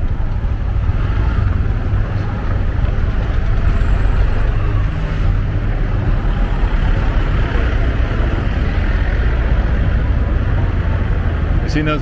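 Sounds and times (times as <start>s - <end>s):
scooter engine: 0.0s - 11.6s
traffic: 0.0s - 12.0s.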